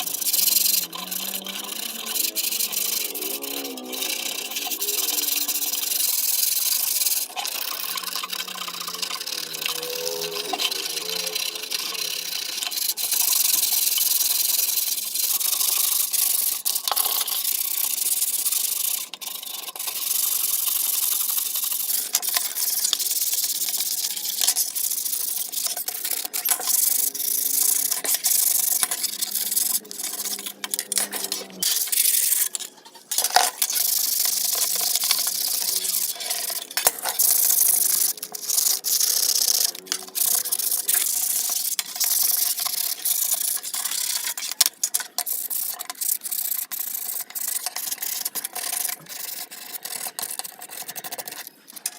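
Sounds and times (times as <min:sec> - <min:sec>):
hand sanding scratchy rub: 0:00.0 - 0:14.8.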